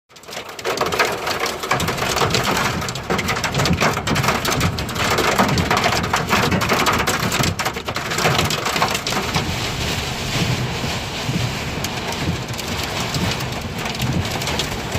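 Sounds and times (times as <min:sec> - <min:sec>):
torrential rain: 0:00.1 - 0:14.9
wind gusts rumbling: 0:08.6 - 0:14.9.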